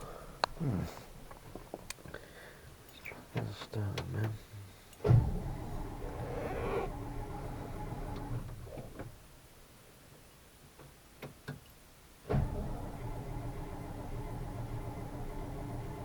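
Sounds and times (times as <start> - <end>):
car engine cranking: 5.0 - 9.2.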